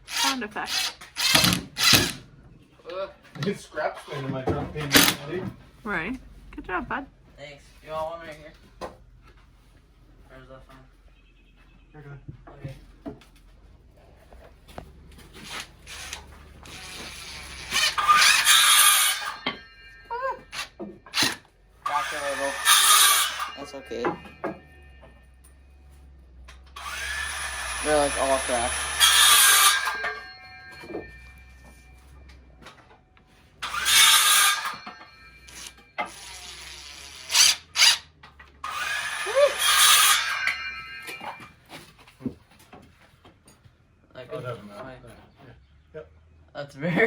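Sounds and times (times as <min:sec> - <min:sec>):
power drill driving screw into wood: 0:00.0 - 0:02.3, 0:04.9 - 0:05.3, 0:15.4 - 0:19.6, 0:20.5 - 0:24.6, 0:26.8 - 0:31.3, 0:33.6 - 0:41.4.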